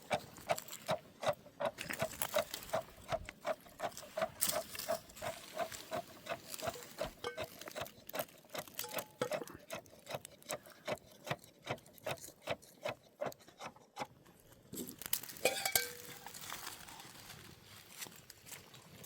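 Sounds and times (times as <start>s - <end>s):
clatter with ringing tone: 1.6s - 11.1s, 15.4s - 16.4s.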